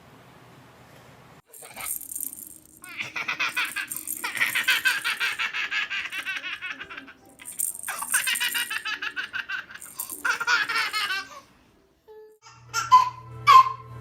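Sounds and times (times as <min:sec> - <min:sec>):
baby giggling: 0:02.8 - 0:11.5.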